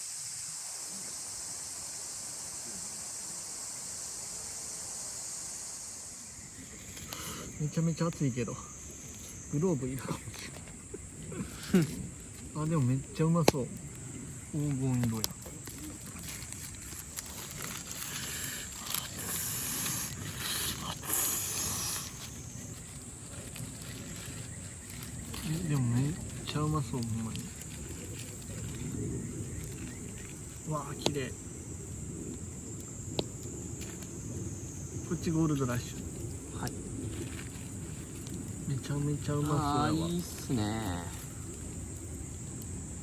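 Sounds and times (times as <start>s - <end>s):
night insects trilling: 0.0s - 43.0s
food sizzling on a grill: 16.8s - 27.3s, 38.6s - 41.7s.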